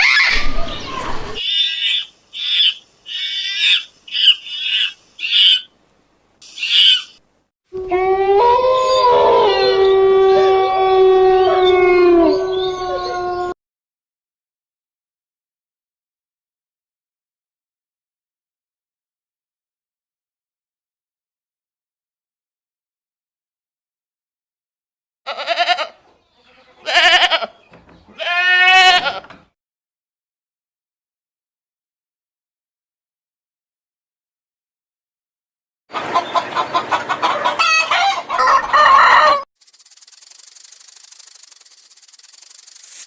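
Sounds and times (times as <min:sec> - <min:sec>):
animal wavering cries: 0:01.4 - 0:05.7, 0:06.6 - 0:07.2, 0:07.8 - 0:13.6
dogs howling: 0:07.8 - 0:13.6.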